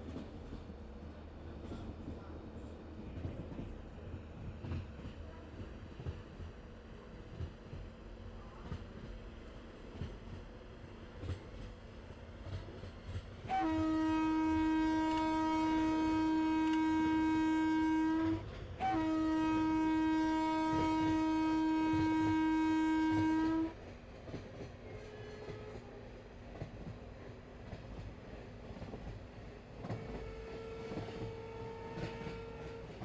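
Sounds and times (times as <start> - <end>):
train rumble: 0.0 - 33.0
train horn blasts: 13.4 - 23.8, 24.9 - 26.0, 29.8 - 33.0.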